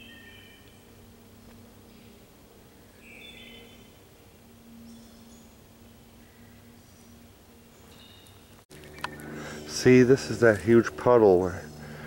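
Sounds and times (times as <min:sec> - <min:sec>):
songbird whistling: 0:00.0 - 0:00.8.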